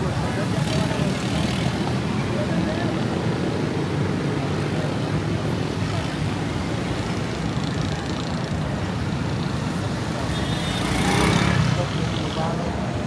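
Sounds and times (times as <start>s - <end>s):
rumble of vehicle traffic: 0.0s - 13.0s.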